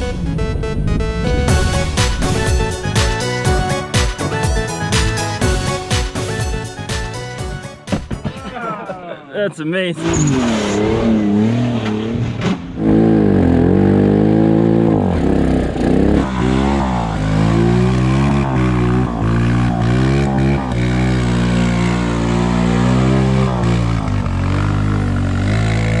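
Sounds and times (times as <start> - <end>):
engines revving: 9.8 - 26.0
steady engine note: 12.7 - 26.0.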